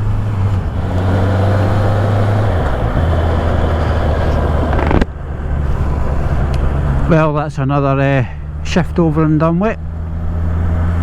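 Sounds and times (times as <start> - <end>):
motorcycle engine running: 0.0 - 7.4
road noise: 0.0 - 11.0
wind noise: 0.3 - 7.6.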